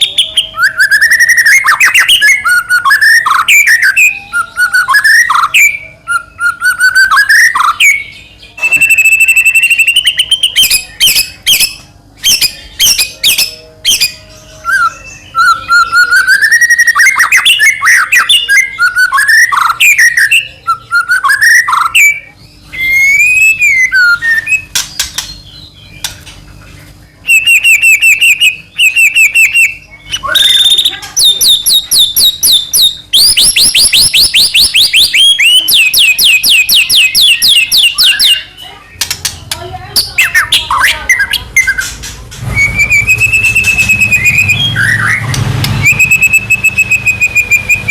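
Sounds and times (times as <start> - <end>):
songbird whistling: 0.0 - 26.2, 27.2 - 47.9
bird harsh clicking chatter: 24.5 - 26.6, 27.3 - 46.9.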